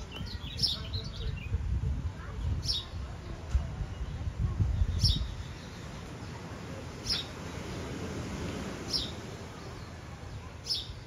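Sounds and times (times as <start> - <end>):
bird chirping: 3.9 - 11.0.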